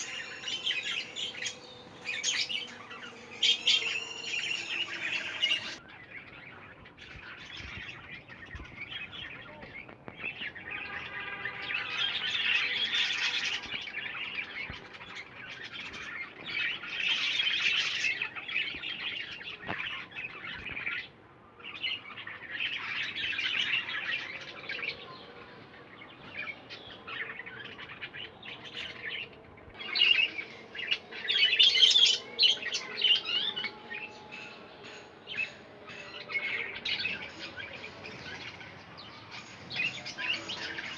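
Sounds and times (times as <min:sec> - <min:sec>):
budgerigars chattering and warbling: 0:00.0 - 0:09.4, 0:29.8 - 0:40.9.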